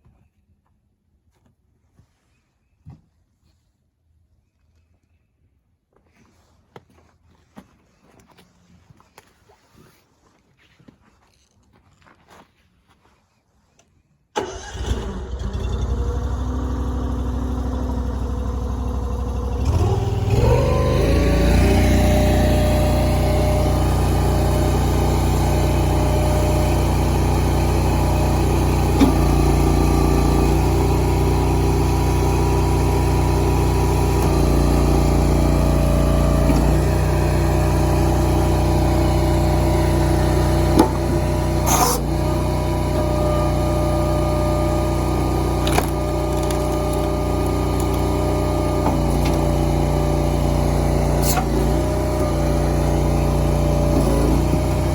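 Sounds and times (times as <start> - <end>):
engine running: 14.4 - 54.9
engine knocks: 40.5 - 42.2.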